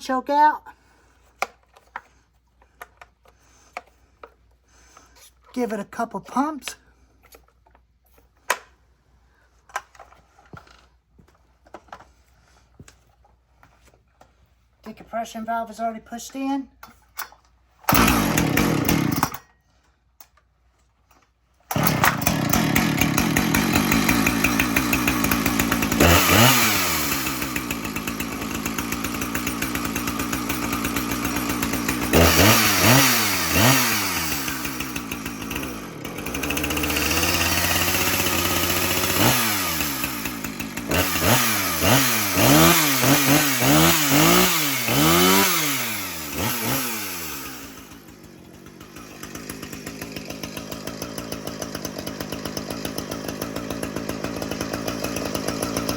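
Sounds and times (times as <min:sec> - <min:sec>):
chainsaw running and revving: 0:17.9 - 0:19.4, 0:21.7 - 0:55.9.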